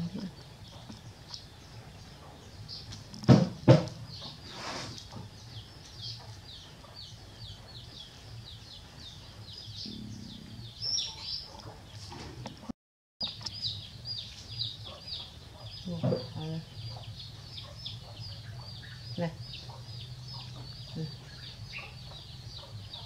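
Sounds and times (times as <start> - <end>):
birds peeping: 0.0 - 23.0
loud knocks: 3.2 - 4.0.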